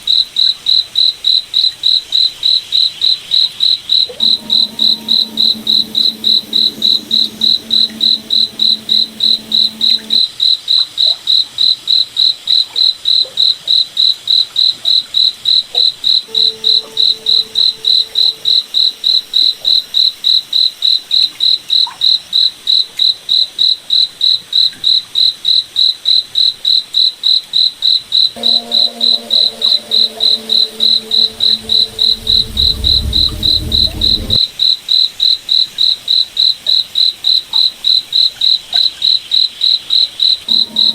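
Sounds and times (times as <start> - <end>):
faint low hum: 4.1 - 10.2, 28.4 - 34.4
deep rumble: 29.5 - 34.4.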